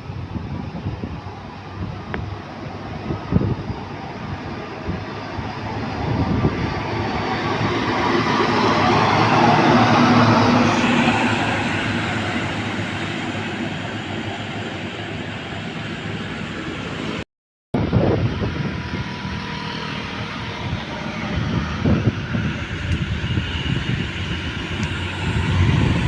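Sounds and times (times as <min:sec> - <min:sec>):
large truck driving past: 0:02.4 - 0:17.2.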